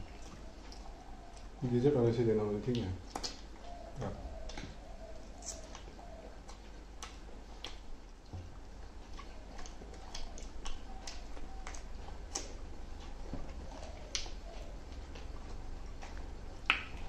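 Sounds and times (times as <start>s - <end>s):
chewing and lip smacking: 0.0s - 1.8s, 2.4s - 17.0s.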